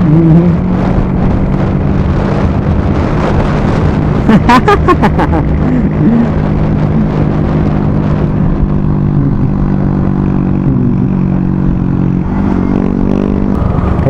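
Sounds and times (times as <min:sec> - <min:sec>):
motorcycle engine running: 0:00.0 - 0:14.0
wind noise on microphone: 0:00.0 - 0:14.0.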